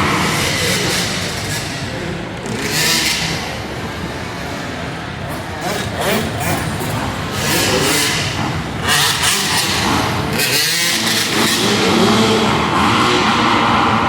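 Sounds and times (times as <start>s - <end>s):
motorbike engines revving: 0.0s - 14.0s.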